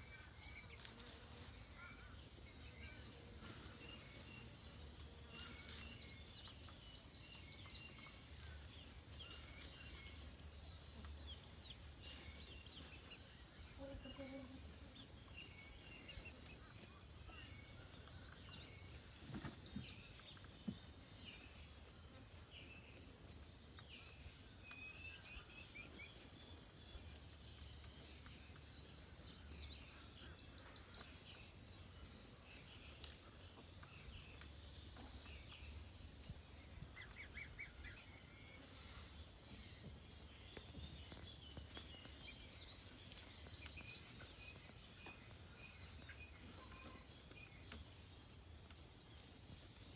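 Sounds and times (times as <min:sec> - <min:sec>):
songbird trill: 0:00.0 - 0:49.9
bird chirps: 0:23.9 - 0:31.6.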